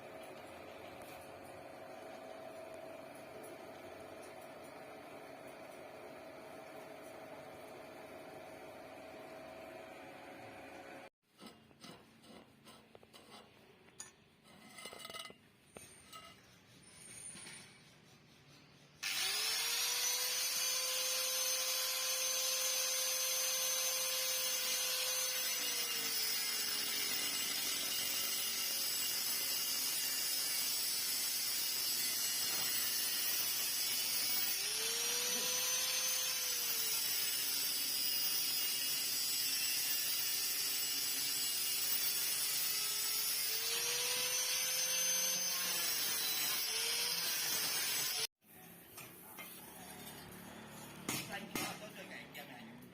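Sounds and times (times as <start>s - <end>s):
power tool whining: 19.0s - 48.3s.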